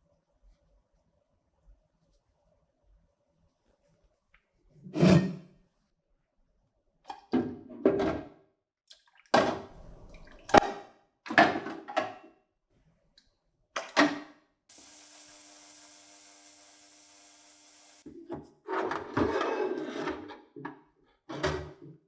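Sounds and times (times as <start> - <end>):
steady hiss: 14.7 - 18.0.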